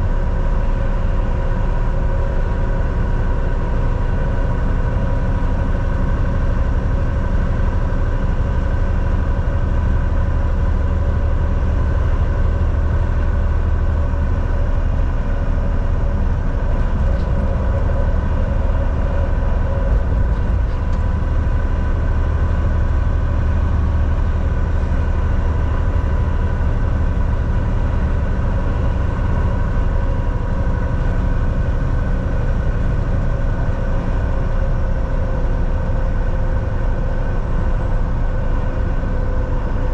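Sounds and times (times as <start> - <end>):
constant high whine: 0.0 - 39.9
truck engine and tyres rumbling: 0.0 - 39.9.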